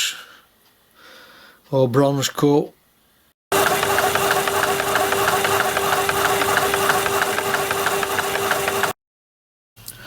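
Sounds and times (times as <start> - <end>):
regular ticking: 3.5 - 9.0
powered saw cutting metal: 3.6 - 9.0.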